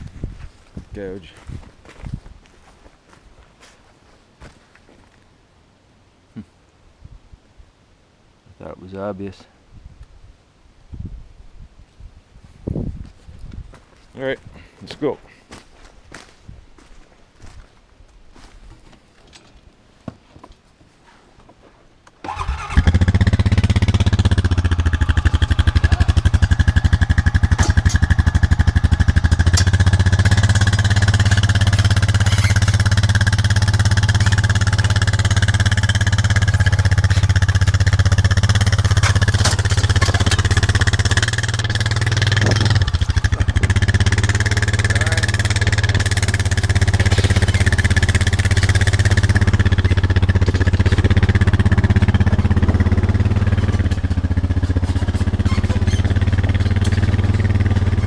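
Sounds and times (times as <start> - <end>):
small engine running: 22.3 - 58.0.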